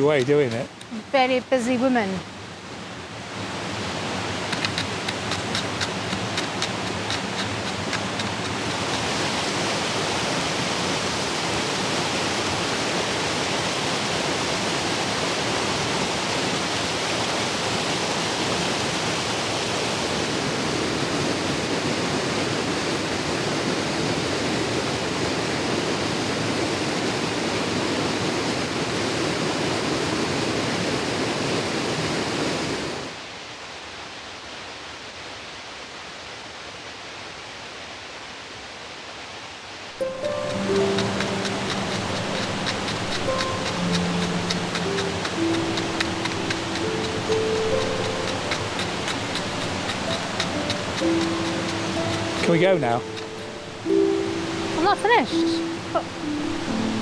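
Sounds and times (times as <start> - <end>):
falling water rushing: 0.0 - 33.2, 39.8 - 57.0
faint rapid ticking: 4.5 - 9.3, 40.0 - 57.0.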